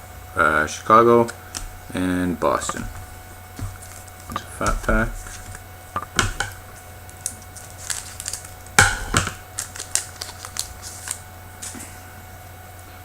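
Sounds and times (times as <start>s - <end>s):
cards clicking and rustling: 2.5s - 11.9s.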